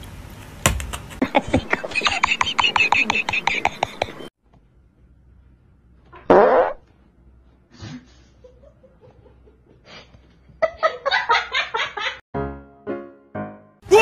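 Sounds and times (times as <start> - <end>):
person laughing: 1.2 - 4.3.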